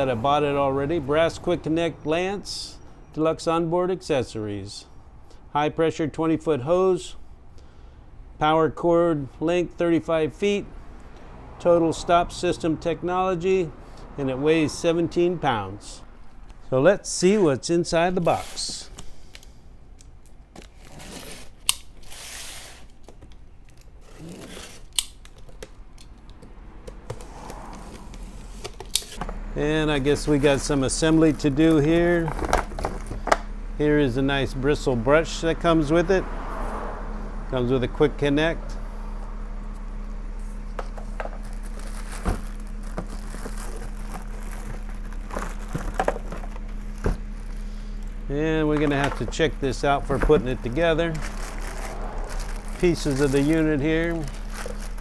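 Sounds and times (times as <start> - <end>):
packing tape cut and torn: 20.2 - 26.4, 41.4 - 47.7, 50.1 - 55.0
steady low hum: 22.8 - 55.0.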